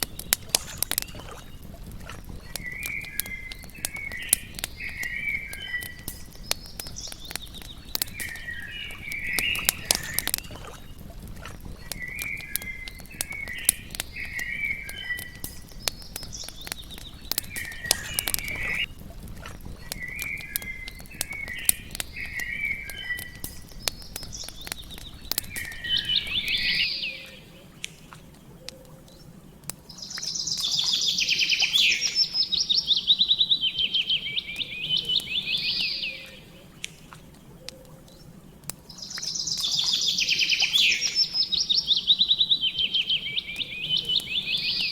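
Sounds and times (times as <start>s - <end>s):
campfire crackling: 0.0s - 44.9s
songbirds singing: 0.0s - 44.9s
bird trilling: 11.7s - 19.0s, 19.6s - 27.8s, 30.0s - 36.8s, 39.0s - 44.9s.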